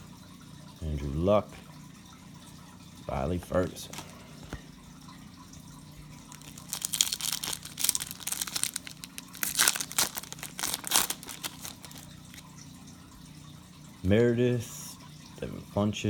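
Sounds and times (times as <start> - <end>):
foil wrapper crinkling and tearing: 6.3 - 12.5.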